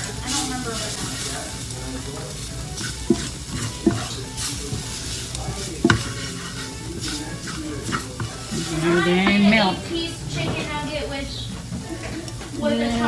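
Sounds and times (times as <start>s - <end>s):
gravy sizzling in a pan: 0.0s - 13.0s
utensil clinking against pan: 0.2s - 9.8s.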